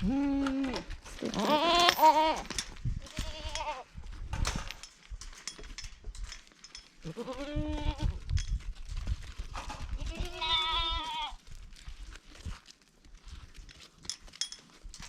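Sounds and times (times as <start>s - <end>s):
goat bleating: 0.0s - 3.9s, 7.0s - 8.2s, 10.0s - 11.4s.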